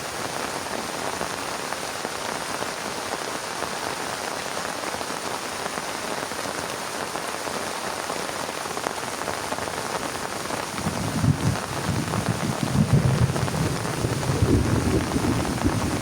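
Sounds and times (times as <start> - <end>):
heavy rain falling: 0.0 - 16.0
low rumble of thunder: 10.7 - 16.0.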